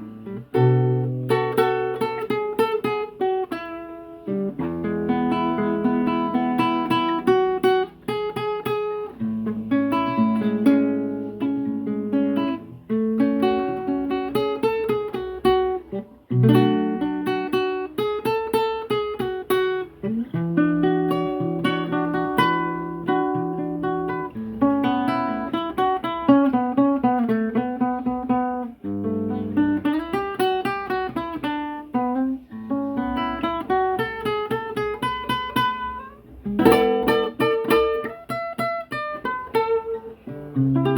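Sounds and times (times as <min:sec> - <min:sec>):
acoustic guitar playing: 0:00.0 - 0:40.9.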